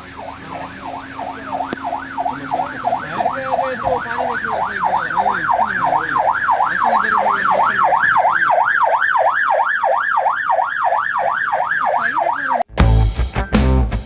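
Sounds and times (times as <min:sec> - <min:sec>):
emergency siren yelping: 0:00.0 - 0:12.7
loud music with drums: 0:12.8 - 0:14.0.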